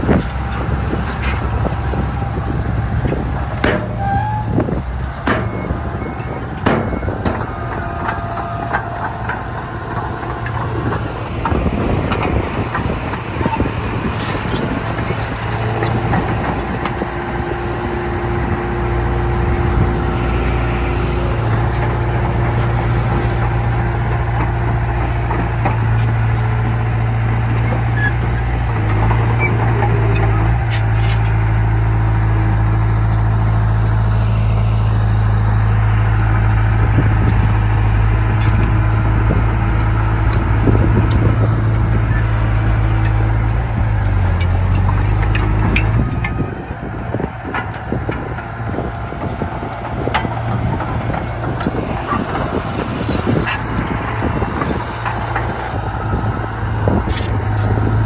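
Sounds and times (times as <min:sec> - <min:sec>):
heavy diesel engines running: 0:00.0 - 0:58.0
metal clanks and knocks: 0:00.2 - 0:17.0, 0:38.3 - 0:46.5.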